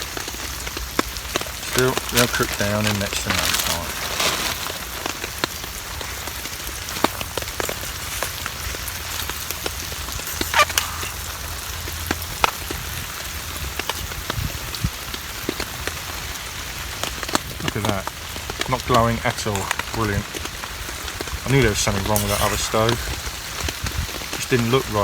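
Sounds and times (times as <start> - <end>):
raindrop ticks: 0.0 - 22.2
rain pattering on a tarp: 0.0 - 25.0.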